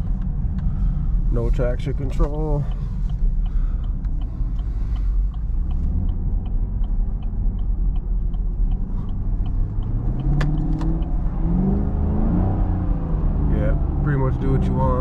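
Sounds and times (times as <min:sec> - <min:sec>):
car engine revving: 0:00.0 - 0:15.0
light ticking: 0:00.1 - 0:11.4.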